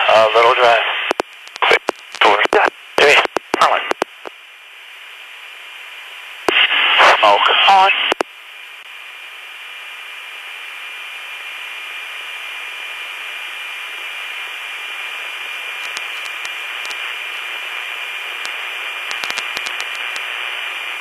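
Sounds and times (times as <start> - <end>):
radio channel hiss: 0.0 - 21.0
faint clicks: 1.1 - 4.4, 15.8 - 17.0, 18.4 - 20.3.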